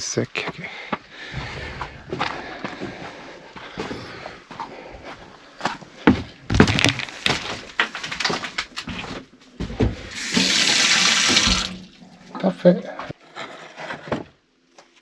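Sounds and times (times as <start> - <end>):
objects knocking and clattering: 6.5 - 10.6
tap water running: 10.1 - 12.5.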